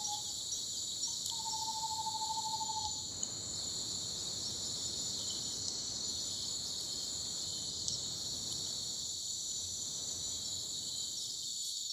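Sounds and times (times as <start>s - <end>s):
insects trilling: 0.0s - 11.9s
faint ticks: 1.0s - 1.6s, 3.0s - 3.4s, 7.8s - 8.7s.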